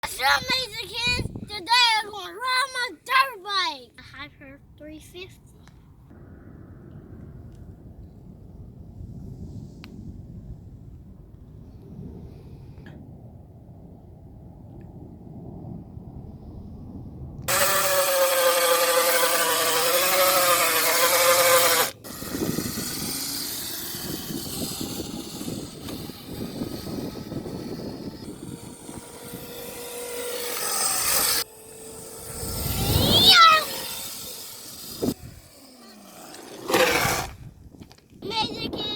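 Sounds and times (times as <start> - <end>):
dirt bike engine whine: 15.7 - 38.0
rough riding noise: 17.5 - 38.3.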